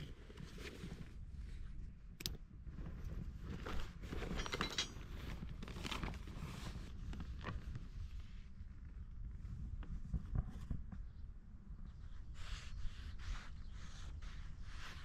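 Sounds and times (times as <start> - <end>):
camping gear rustling: 0.0 - 1.8, 2.6 - 8.3
light clicks and clinks: 4.2 - 5.2.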